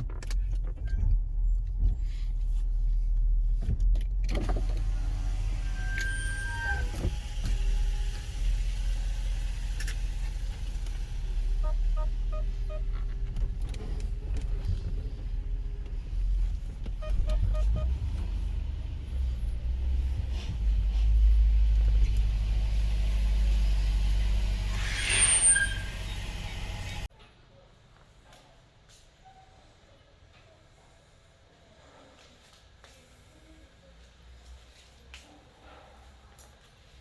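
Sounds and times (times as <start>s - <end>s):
car engine idling: 7.1s - 24.8s.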